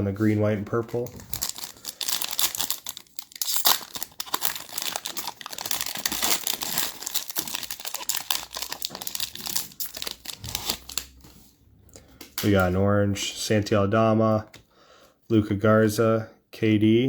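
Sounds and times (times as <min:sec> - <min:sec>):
plastic wrapper crinkling and tearing: 0:00.9 - 0:11.2.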